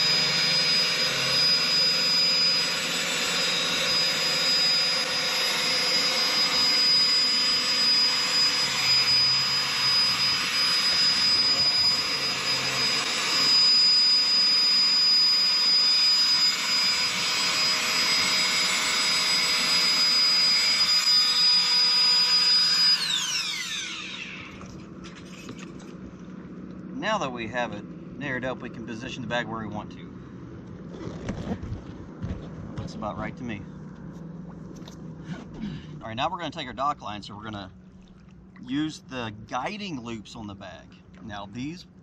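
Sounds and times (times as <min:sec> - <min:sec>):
electric air pump running: 0:00.0 - 0:26.6.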